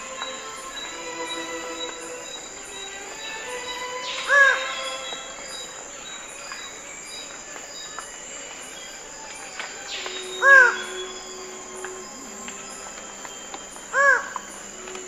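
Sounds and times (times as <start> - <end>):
high insect pulse: 0.0 - 15.0
loud bird call: 9.4 - 15.0.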